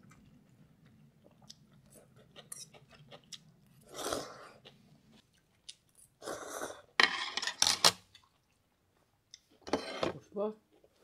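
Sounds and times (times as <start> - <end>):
person slurping noodles: 3.8 - 4.6.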